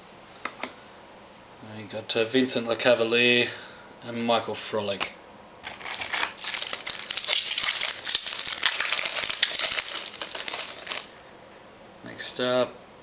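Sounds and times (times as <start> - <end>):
card pack wrapper crinkling: 5.6 - 11.3.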